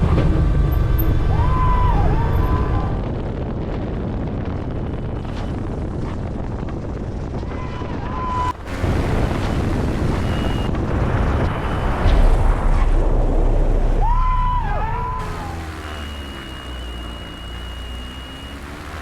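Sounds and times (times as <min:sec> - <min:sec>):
deep rumble: 0:00.0 - 0:19.0
short electronic tones: 0:08.6 - 0:10.8, 0:15.2 - 0:19.0
light aircraft engine: 0:08.6 - 0:12.0, 0:14.3 - 0:19.0.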